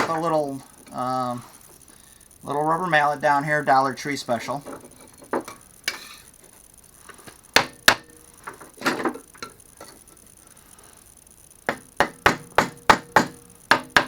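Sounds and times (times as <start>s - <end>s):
rubber mallet knocking wood: 11.7s - 14.0s.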